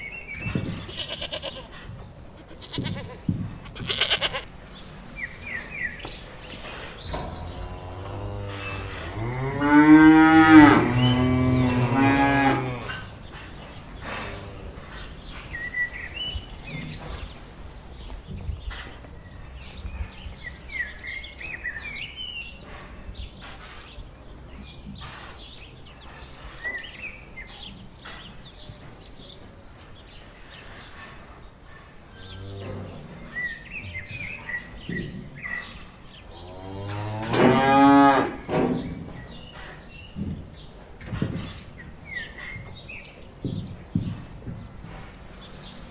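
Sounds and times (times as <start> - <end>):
small birds chirping: 0.0 - 37.3, 37.9 - 45.9
cow lowing: 6.2 - 15.6.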